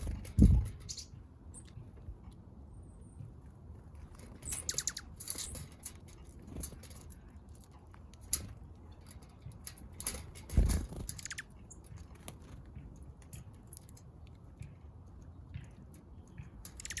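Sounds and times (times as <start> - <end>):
songbirds chirping: 0.0 - 17.0
pecking ticks: 4.1 - 10.4, 11.0 - 17.0.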